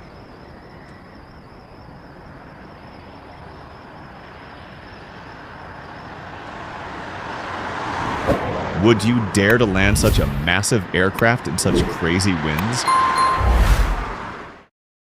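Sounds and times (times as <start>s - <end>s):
wind: 0.0s - 14.7s
jet airliner rushing noise: 9.5s - 10.6s, 11.6s - 12.1s.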